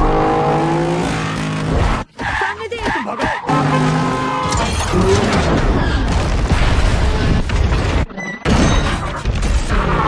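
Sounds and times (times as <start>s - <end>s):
car noise: 0.0s - 6.0s.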